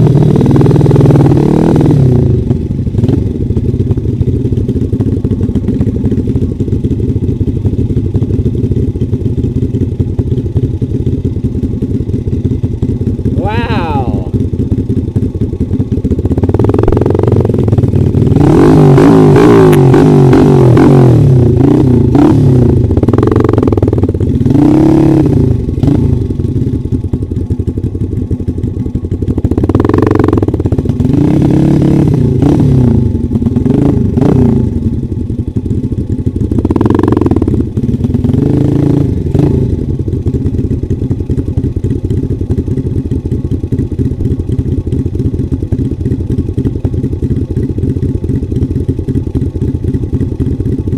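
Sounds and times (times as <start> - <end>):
dirt bike engine revving: 0.0 - 2.4, 16.4 - 26.3, 29.5 - 34.8, 36.6 - 39.8.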